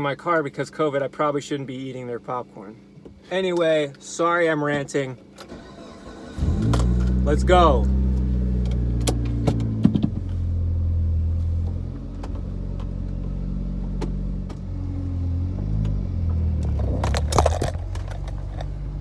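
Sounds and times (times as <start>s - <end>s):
car engine pulling away: 5.5s - 19.0s.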